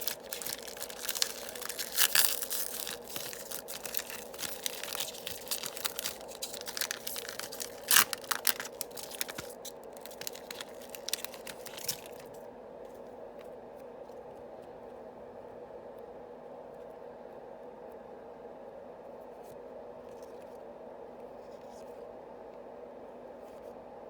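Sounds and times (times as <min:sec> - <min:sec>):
wrapper tearing and crinkling: 0:00.0 - 0:12.4.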